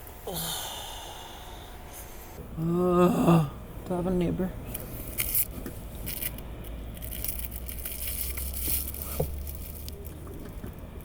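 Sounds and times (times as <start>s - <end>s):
low steady hum: 0.0s - 11.0s
rustling and crinkling: 4.7s - 11.0s.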